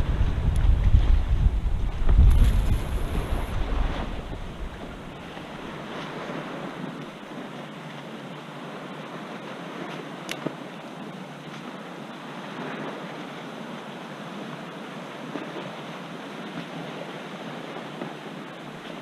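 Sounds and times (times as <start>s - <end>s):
wind noise on microphone: 0.0s - 7.5s
river water splashing: 0.0s - 19.0s.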